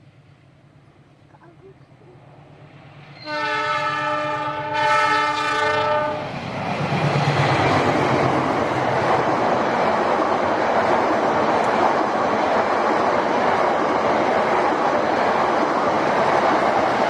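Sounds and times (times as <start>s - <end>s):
locomotive horn chord: 3.2s - 6.2s.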